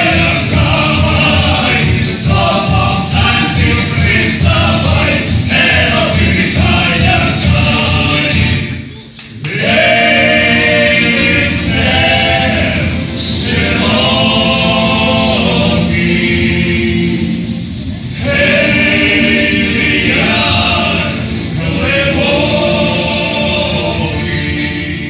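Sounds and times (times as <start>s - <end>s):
choir singing: 0.0s - 25.0s.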